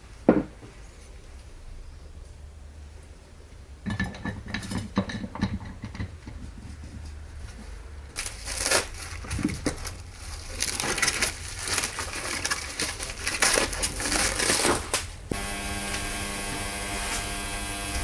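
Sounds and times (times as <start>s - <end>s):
electric motor hum: 15.3s - 18.0s.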